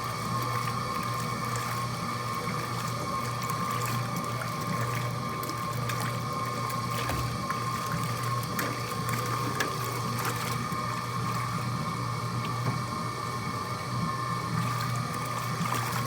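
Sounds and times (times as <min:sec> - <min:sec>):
washing machine motor hum: 0:00.0 - 0:16.0.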